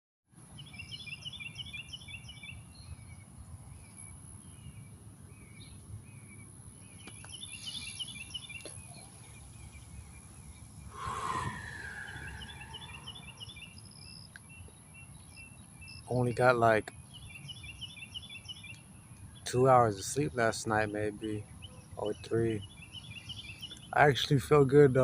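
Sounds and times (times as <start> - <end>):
songbirds chirping: 0.4 - 25.0
low rumble: 10.9 - 13.4
high insect-like hiss: 10.9 - 14.1.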